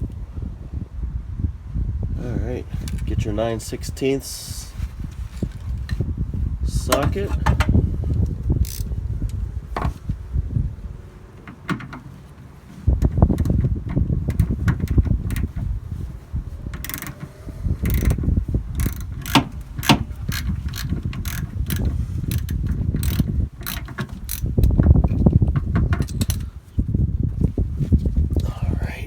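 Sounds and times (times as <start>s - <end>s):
low handling rumble: 0.0s - 29.0s
socket ratchet clicking: 6.9s - 8.9s, 16.7s - 26.5s.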